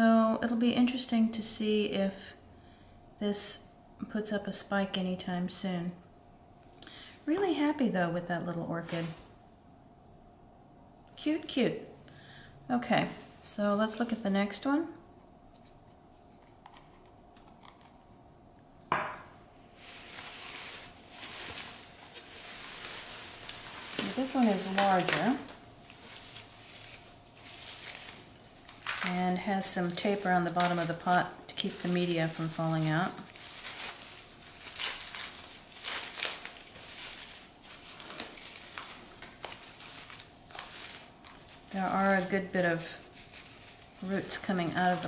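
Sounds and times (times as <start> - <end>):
rustling newspaper packing: 8.8 - 9.3, 19.7 - 45.0.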